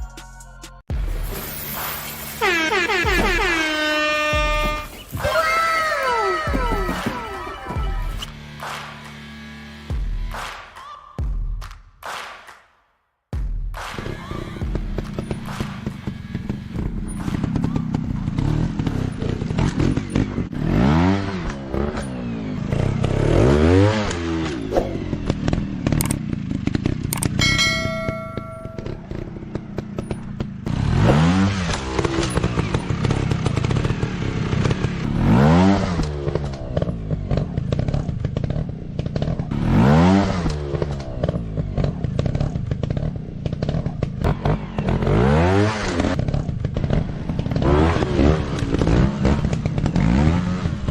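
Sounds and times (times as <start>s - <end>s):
motorcycle engine revving: 1.0s - 10.4s, 13.9s - 50.9s
brief ringing tone: 27.4s - 29.2s.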